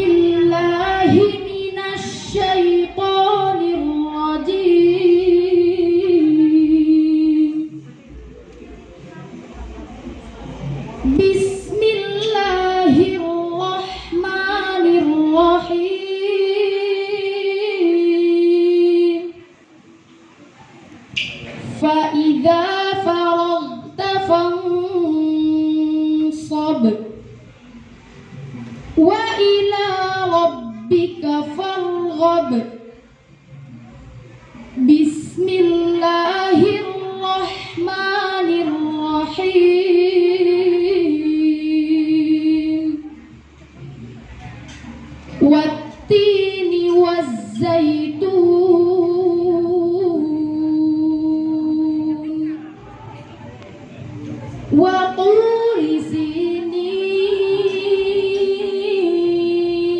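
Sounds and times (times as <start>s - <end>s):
person chanting melodically: 0.0s - 8.0s, 45.3s - 53.2s, 54.7s - 59.9s
high voice chanting recitation: 0.0s - 9.7s, 10.3s - 19.7s, 21.1s - 59.9s.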